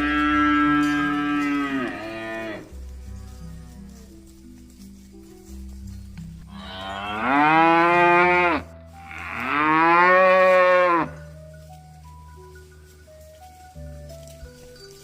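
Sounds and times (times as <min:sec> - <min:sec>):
cow mooing: 0:00.0 - 0:04.1, 0:06.5 - 0:11.2.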